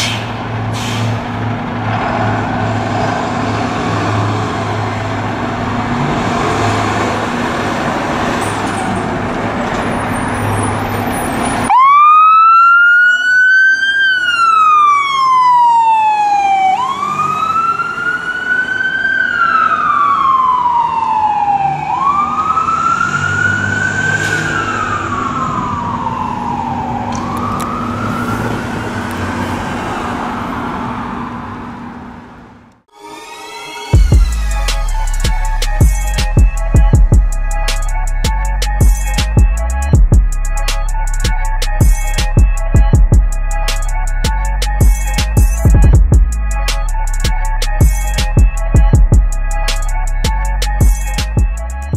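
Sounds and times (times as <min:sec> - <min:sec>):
heavy vehicle engine: 0:00.0 - 0:11.7, 0:22.9 - 0:32.9, 0:34.0 - 0:51.9
road noise: 0:00.0 - 0:32.9, 0:33.8 - 0:51.9
emergency siren wailing: 0:02.4 - 0:32.3, 0:32.9 - 0:51.9.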